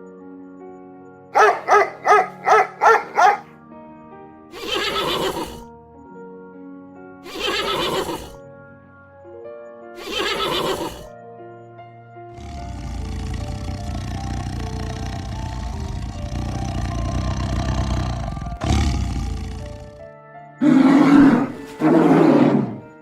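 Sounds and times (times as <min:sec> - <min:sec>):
background music: 0:00.0 - 0:23.0
dog barking: 0:01.3 - 0:03.5
horse neighing: 0:04.5 - 0:05.7, 0:07.2 - 0:08.4, 0:10.0 - 0:11.1, 0:12.4 - 0:22.9.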